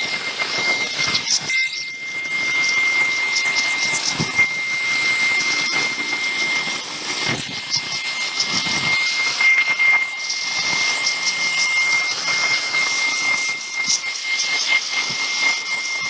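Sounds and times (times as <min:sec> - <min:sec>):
steady machine noise: 0:00.0 - 0:15.8
high-pitched whine: 0:00.0 - 0:16.0.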